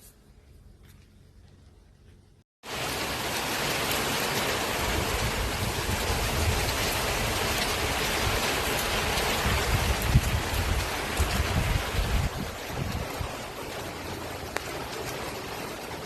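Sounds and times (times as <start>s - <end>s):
heavy rain hissing: 2.6s - 16.0s
gusty low rumbling: 4.9s - 13.3s.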